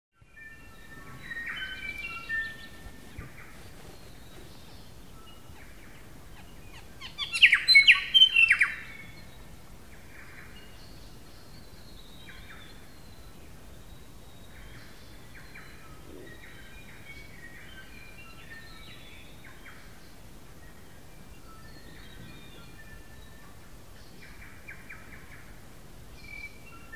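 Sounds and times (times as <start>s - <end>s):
steady outdoor hiss: 0.2s - 26.9s.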